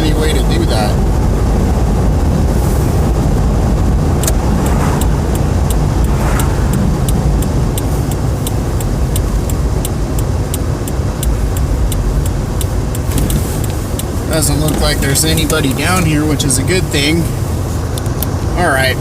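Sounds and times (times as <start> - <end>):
car engine and road rumble: 0.0 - 19.0
even ticking clicks: 4.2 - 16.1.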